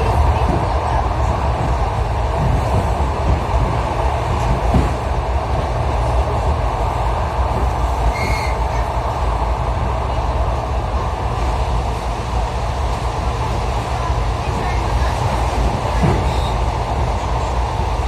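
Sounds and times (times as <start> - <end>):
train rumbling on rails: 0.0 - 18.0
high wheel squeal: 8.1 - 8.6.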